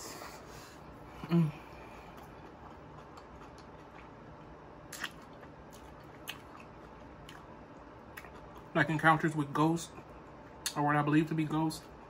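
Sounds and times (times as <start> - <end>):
person chewing: 1.2 - 8.8.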